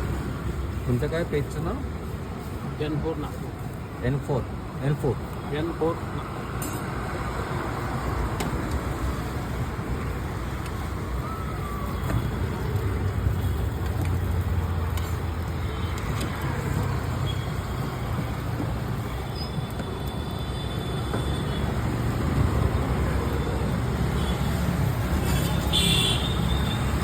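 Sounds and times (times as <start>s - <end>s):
roadside traffic: 0.0s - 27.0s.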